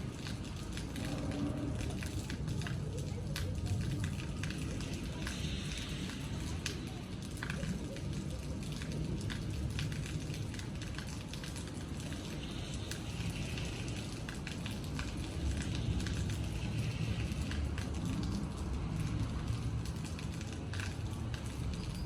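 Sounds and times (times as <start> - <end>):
raindrops tapping on hard surface: 0.0 - 22.0
low rumble: 0.6 - 4.6.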